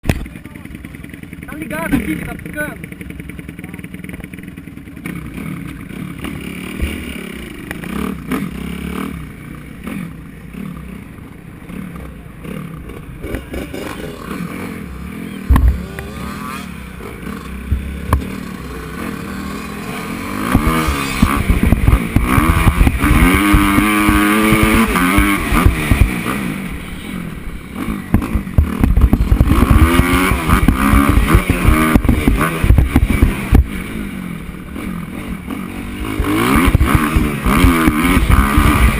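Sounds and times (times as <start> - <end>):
motocross bike engine revving: 0.1 - 38.9
sharp thump: 15.4 - 16.0, 20.4 - 26.2.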